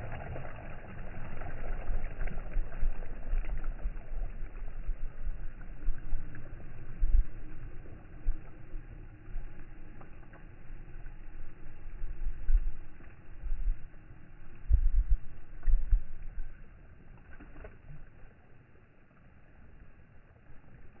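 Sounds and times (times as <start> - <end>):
sea water rushing: 0.0 - 21.0
wind buffeting microphone: 11.2 - 16.6.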